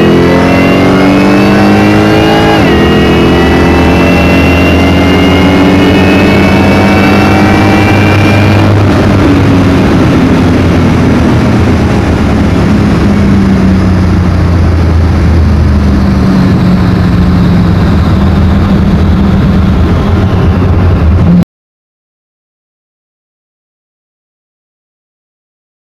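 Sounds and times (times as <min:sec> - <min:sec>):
drag car engine running hard: 0:00.0 - 0:21.4
high whine: 0:00.0 - 0:21.4.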